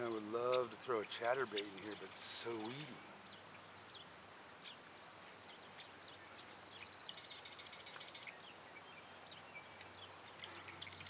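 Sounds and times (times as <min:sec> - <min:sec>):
faint bird chirps: 0:00.0 - 0:11.0
fast bird trill: 0:01.4 - 0:03.0.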